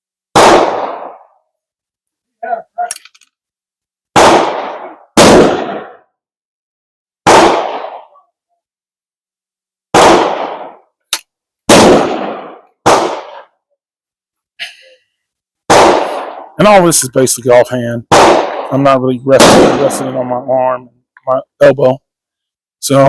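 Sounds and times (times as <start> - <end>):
echoing gunshots: 0.3 - 1.3, 4.2 - 6.1, 7.2 - 8.2, 9.9 - 10.9, 11.7 - 13.4, 15.7 - 16.8, 18.1 - 20.4.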